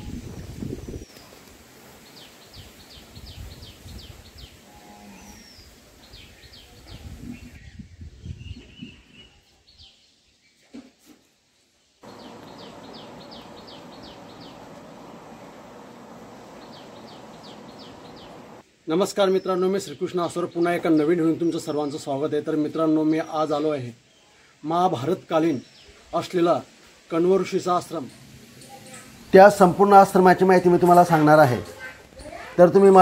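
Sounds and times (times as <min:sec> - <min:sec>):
outdoor ambience: 0:00.0 - 0:33.0
steady hiss: 0:11.9 - 0:20.1, 0:22.6 - 0:32.5
bird high falling chirps: 0:12.0 - 0:18.6.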